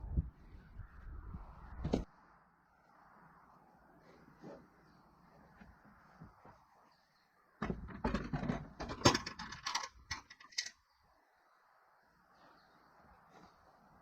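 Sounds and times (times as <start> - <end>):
clattering knocks and rattles: 7.6 - 10.7.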